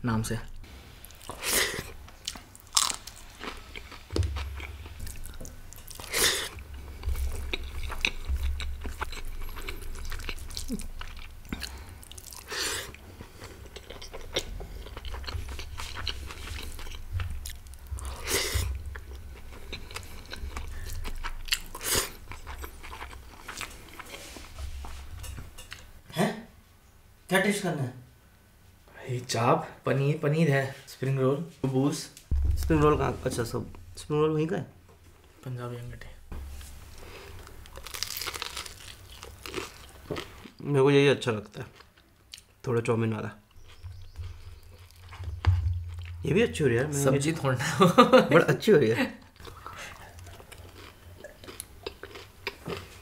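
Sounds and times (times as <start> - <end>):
person chewing food: 1.0 - 25.9, 36.3 - 40.6, 43.5 - 46.2, 49.4 - 53.0
crunchy bites: 37.3 - 40.4.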